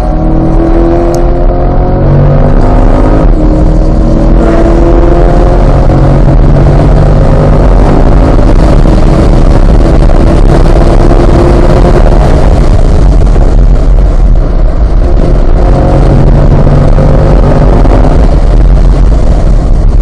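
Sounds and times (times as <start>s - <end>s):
car engine at full throttle: 0.0s - 20.0s
wind and road noise: 0.0s - 20.0s.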